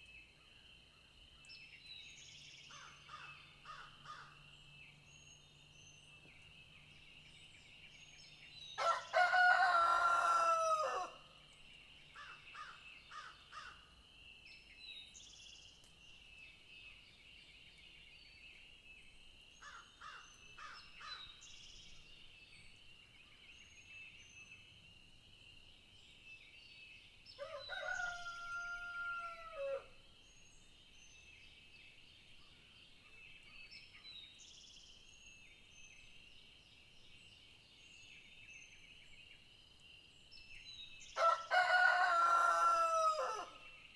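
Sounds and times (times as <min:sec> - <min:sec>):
rooster crowing: 0:08.8 - 0:11.2, 0:27.4 - 0:29.9, 0:41.2 - 0:43.6.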